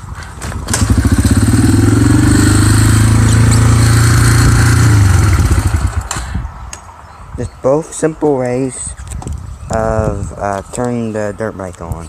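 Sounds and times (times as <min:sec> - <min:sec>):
dirt bike kick-started: 0:00.1 - 0:06.3.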